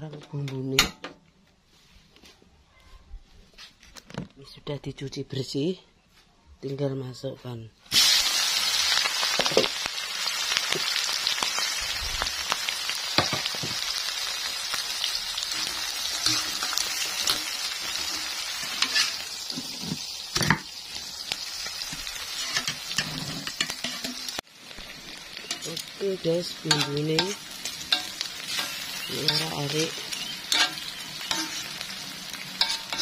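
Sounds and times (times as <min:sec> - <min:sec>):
food sizzling in hot oil: 0:07.9 - 0:33.0
metal utensil scraping a wok: 0:15.4 - 0:20.6, 0:22.0 - 0:24.4, 0:25.4 - 0:33.0.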